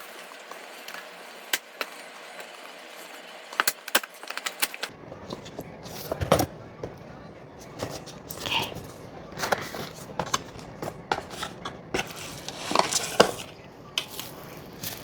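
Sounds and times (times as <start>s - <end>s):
packaging rustling: 7.6s - 15.0s
packaging clicks and taps: 7.7s - 15.0s.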